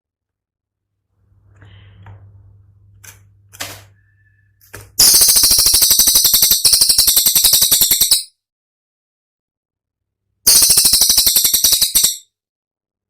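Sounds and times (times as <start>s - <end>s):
bird rattling call: 5.0s - 8.3s, 10.5s - 12.2s.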